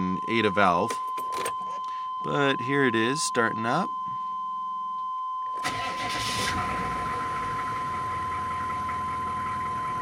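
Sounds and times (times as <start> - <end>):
diesel engine starting and idling: 5.6 - 10.0.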